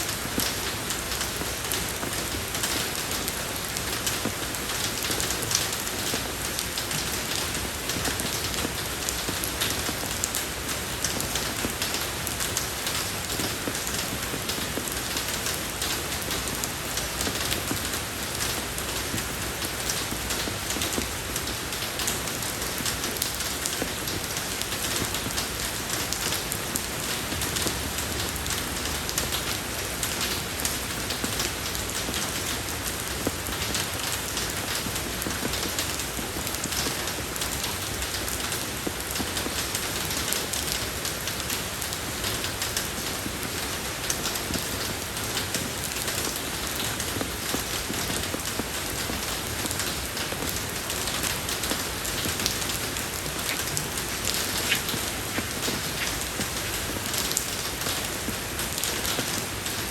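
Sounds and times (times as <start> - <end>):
rain falling on a road: 0.0 - 59.9.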